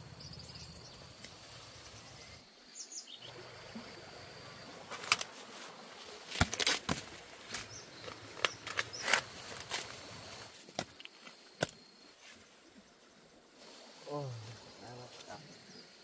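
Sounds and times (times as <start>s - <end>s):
bird chirping: 0.0s - 1.2s, 1.8s - 4.0s
crickets trilling: 0.0s - 16.0s.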